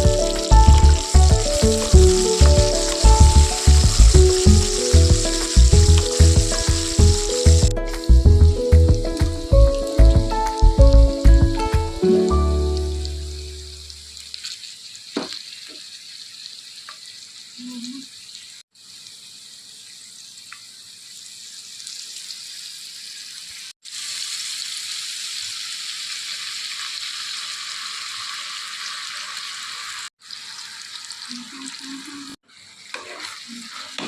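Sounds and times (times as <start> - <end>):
background music: 0.0 - 13.8
chicken sizzling in hot oil: 0.0 - 34.0.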